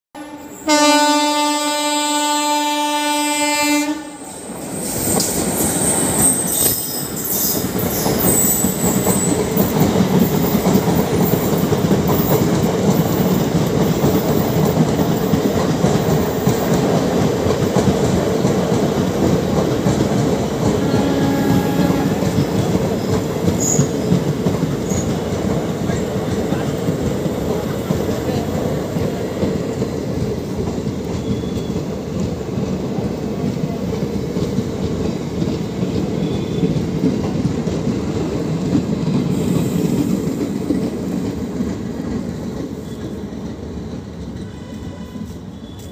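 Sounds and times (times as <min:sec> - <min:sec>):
train horn blast: 0:00.2 - 0:04.2, 0:20.6 - 0:22.6, 0:44.4 - 0:45.9.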